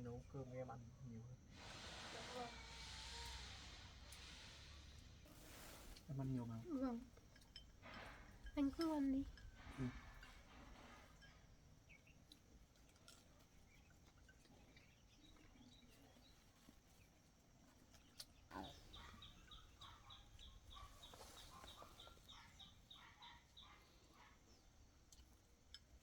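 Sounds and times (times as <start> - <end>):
faint rural ambience: 0.0 - 26.0
faint calls: 18.5 - 24.8.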